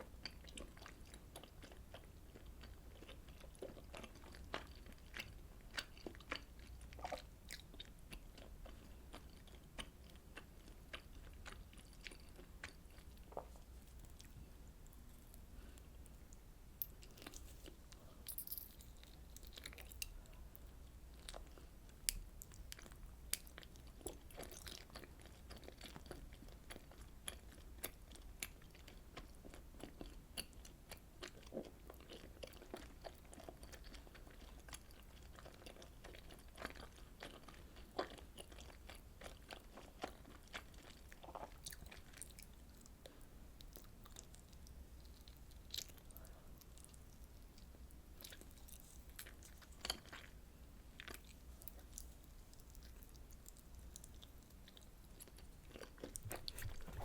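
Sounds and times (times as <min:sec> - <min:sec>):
close chewing mouth sounds: 0:00.0 - 0:16.4, 0:18.9 - 0:57.0
crunches while chewing: 0:51.0 - 0:57.0.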